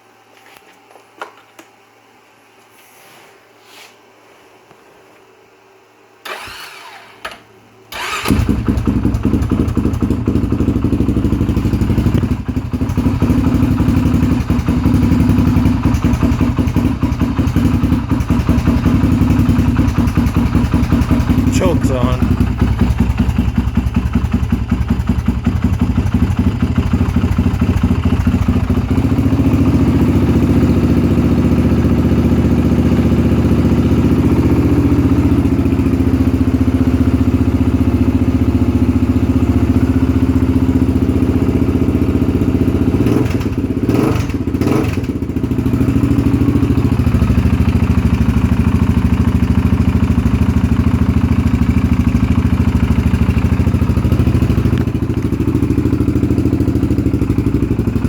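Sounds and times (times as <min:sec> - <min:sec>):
quad engine idling and revving: 0:08.0 - 0:58.0.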